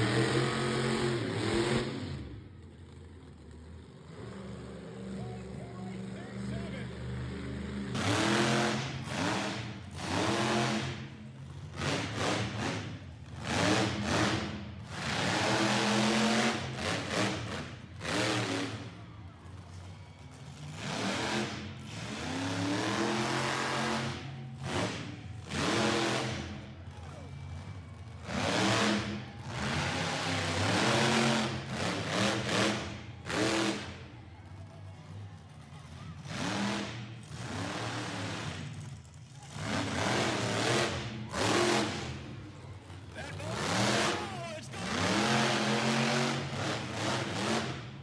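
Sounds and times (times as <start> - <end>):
truck engine revving hard: 0.0 - 19.0, 20.6 - 26.7, 27.6 - 34.0, 36.2 - 38.9, 39.5 - 48.0.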